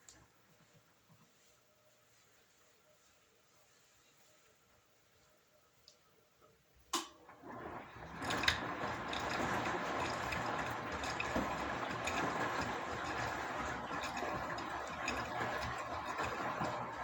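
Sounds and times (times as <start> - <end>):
water rushing into machine: 7.3 - 17.0.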